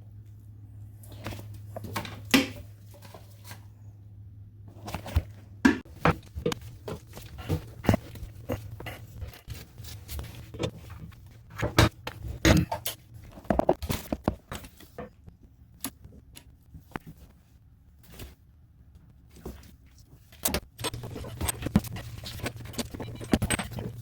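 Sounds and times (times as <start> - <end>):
steady low hum: 0.0 - 24.0
hard objects clicking and knocking: 20.4 - 24.0.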